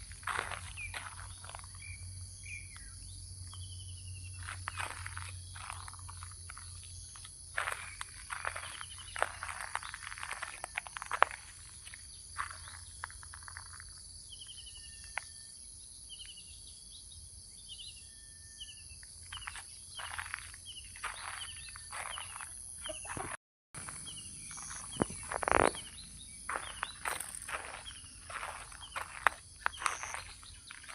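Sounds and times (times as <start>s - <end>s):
birds chirping: 0.0s - 6.8s, 18.7s - 30.9s
high insect drone: 17.5s - 30.9s.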